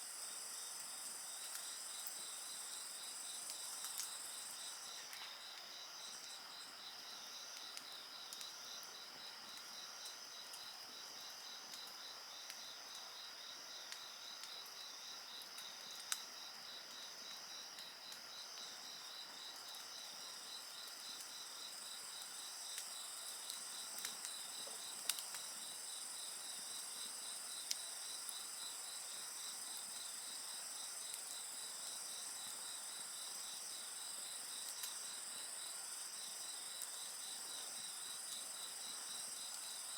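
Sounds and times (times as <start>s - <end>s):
insects chirping and trilling: 0.0s - 39.9s
wood fire crackling: 18.1s - 28.4s.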